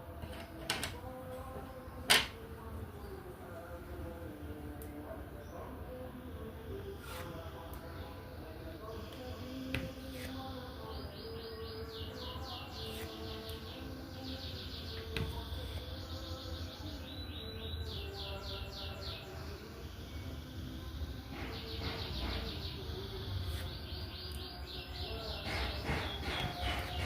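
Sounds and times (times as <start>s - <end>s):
small birds chirping in trills: 0.3s - 27.0s.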